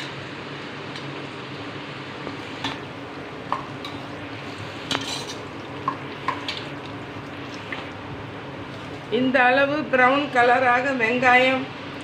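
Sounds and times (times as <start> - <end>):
onions sizzling in oil: 0.0 - 12.0
utensil scraping a pan: 4.8 - 5.4.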